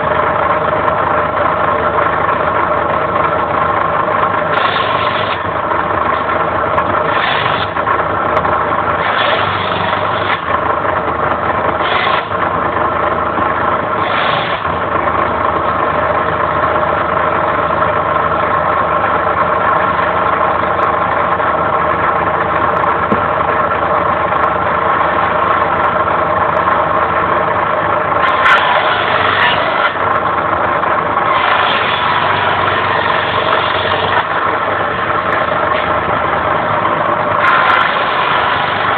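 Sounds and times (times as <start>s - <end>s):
circular saw whining: 4.0s - 12.8s, 13.4s - 15.7s, 28.0s - 38.9s
saw blade cutting wood: 4.5s - 5.6s, 7.0s - 7.9s, 9.0s - 10.6s, 11.8s - 12.4s, 14.0s - 14.9s, 28.2s - 30.1s, 31.2s - 34.4s, 37.4s - 38.9s.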